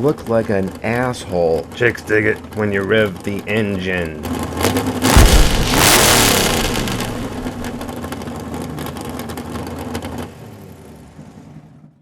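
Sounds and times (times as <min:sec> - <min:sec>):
car engine revving: 0:04.2 - 0:08.0.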